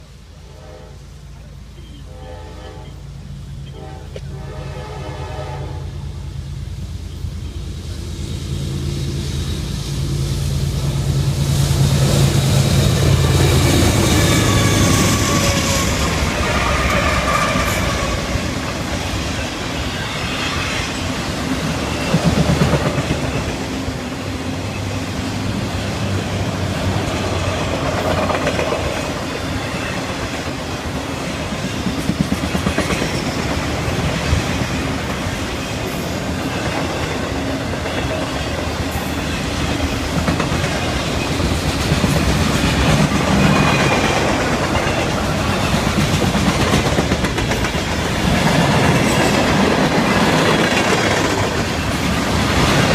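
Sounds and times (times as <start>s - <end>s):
train rumbling past: 0.0s - 52.9s
faint high wheel squeal: 12.4s - 18.3s
wheels clacking over rail joints: 26.9s - 30.9s, 31.5s - 52.9s.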